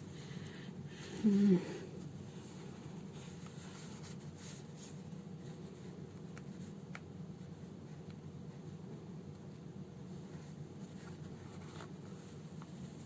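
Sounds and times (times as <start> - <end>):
low room hum: 0.0 - 13.0
person humming: 0.9 - 2.0.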